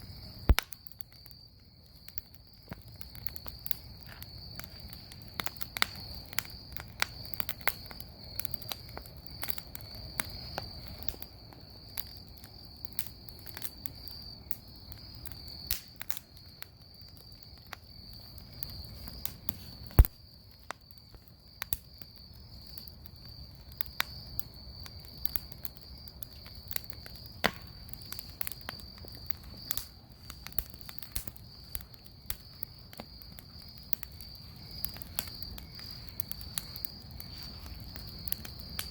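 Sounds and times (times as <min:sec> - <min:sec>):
bonfire crackling and popping: 0:00.0 - 0:38.9
cricket trill: 0:00.0 - 0:38.9.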